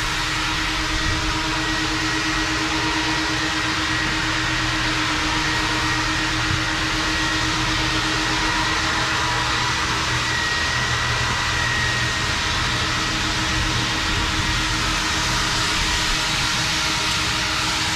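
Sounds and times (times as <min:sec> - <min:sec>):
constant machine hum: 0:00.0 - 0:17.9.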